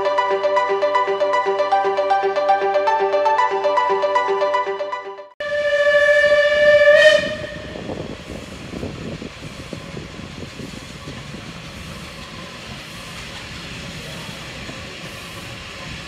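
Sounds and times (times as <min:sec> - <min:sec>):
steam locomotive whistle: 0:05.4 - 0:07.9
train rumbling in motion: 0:05.6 - 0:16.0.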